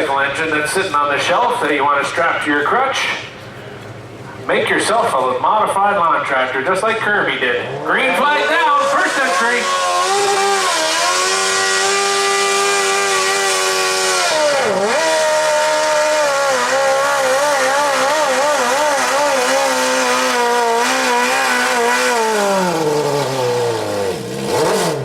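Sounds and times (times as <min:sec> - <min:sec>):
lawn tractor engine revving: 0:07.6 - 0:25.0.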